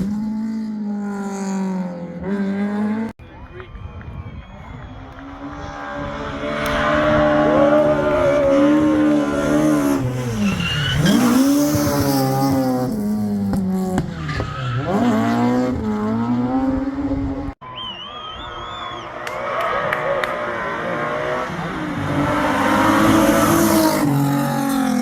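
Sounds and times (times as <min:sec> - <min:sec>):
rally car engine revving: 0:04.9 - 0:17.6, 0:19.4 - 0:25.0
tyre squeal: 0:06.8 - 0:12.9, 0:14.1 - 0:15.5.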